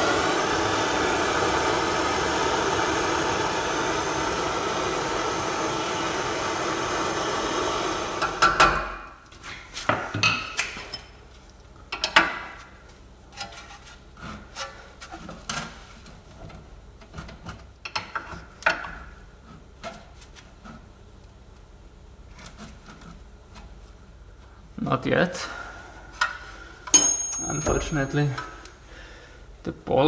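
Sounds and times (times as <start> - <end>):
tools knocking against metal: 27.0 - 28.3.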